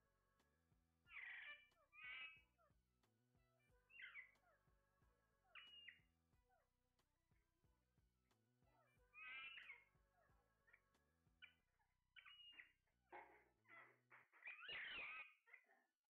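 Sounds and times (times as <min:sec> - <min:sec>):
parrots squawking and whistling: 0:01.1 - 0:02.4, 0:03.9 - 0:04.5, 0:05.4 - 0:06.0, 0:08.8 - 0:10.8, 0:12.2 - 0:12.7, 0:13.6 - 0:15.7.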